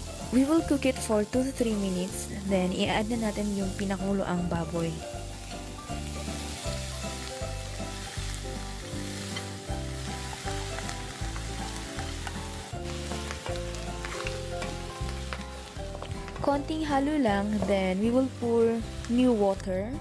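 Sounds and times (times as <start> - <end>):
meat sizzling in a frying pan: 0.0 - 20.0
wooden spatula stirring: 9.0 - 16.5.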